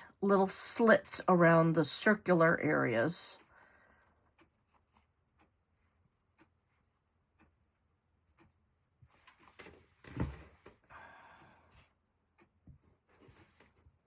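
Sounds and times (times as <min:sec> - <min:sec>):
rustling of craft materials: 0:09.0 - 0:10.9.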